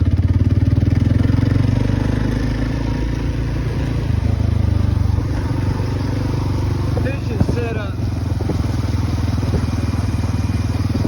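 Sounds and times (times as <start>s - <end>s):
engine running with fast pulsing: 0.0s - 11.0s.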